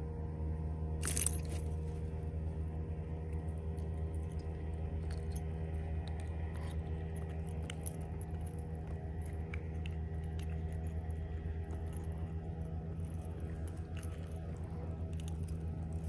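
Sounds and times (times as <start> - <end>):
light metallic clicks and jingles: 1.0 - 2.3, 3.1 - 16.0.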